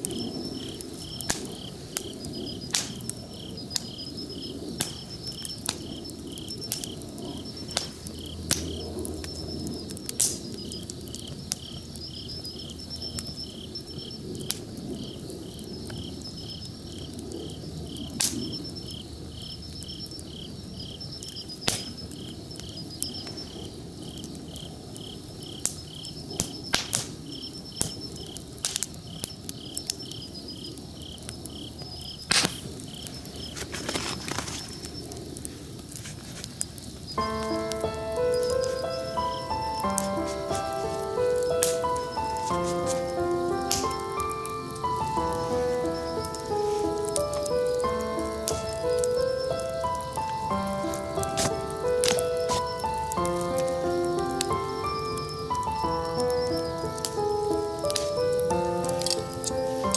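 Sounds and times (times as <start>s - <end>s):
campfire crackling and popping: 0.0s - 59.9s
faint high insect trill: 0.0s - 59.9s
insect chirping: 0.0s - 59.9s.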